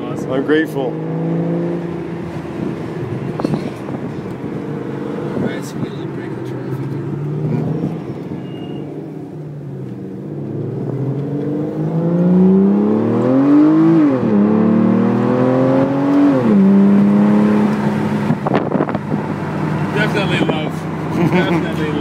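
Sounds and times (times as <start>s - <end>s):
car engine accelerating through gears: 0.0s - 21.6s.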